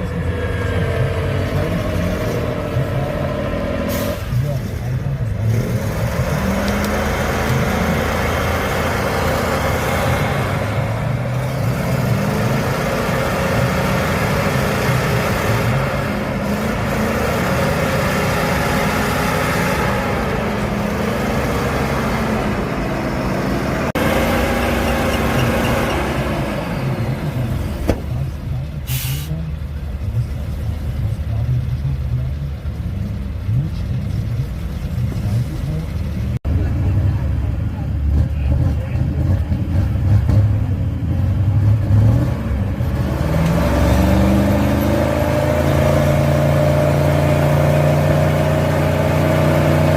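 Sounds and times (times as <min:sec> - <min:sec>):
truck engine revving under load: 0:00.0 - 0:49.9
short hiss: 0:28.9 - 0:29.4.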